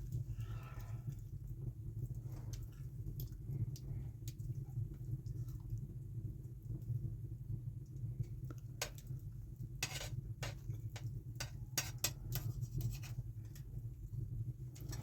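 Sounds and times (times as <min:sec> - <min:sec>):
utensils clinking on dishes: 0:11.4 - 0:13.1.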